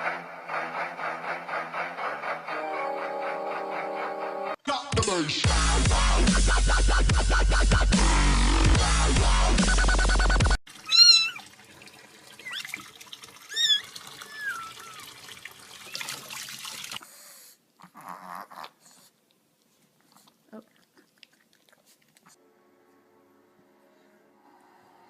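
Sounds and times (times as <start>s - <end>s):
dubstep music: 4.7s - 10.6s
cat meowing: 10.8s - 11.4s, 13.5s - 15.1s.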